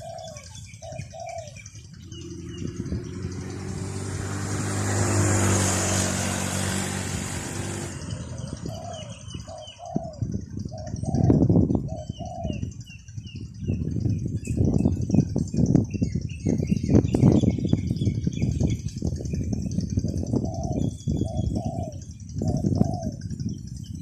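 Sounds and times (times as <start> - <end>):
motor vehicle passing: 0.0 - 10.6
doves cooing: 0.0 - 12.8, 20.1 - 23.4.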